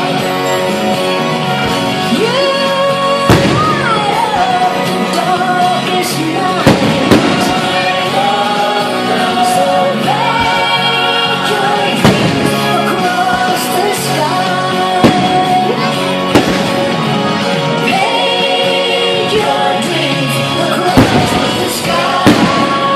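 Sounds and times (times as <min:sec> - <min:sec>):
loud music with singing: 0:00.0 - 0:22.9
firework bangs: 0:03.2 - 0:04.7, 0:06.5 - 0:08.7, 0:10.2 - 0:13.5, 0:14.6 - 0:17.4, 0:20.8 - 0:22.9.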